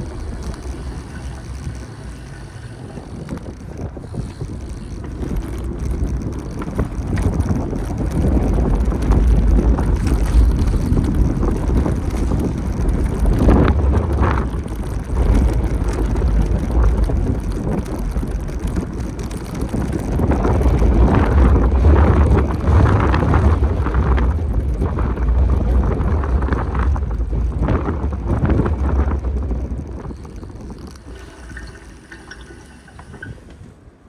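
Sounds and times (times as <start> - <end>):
street sounds: 0.0 - 32.1
wind rumbling over microphone: 0.0 - 34.0.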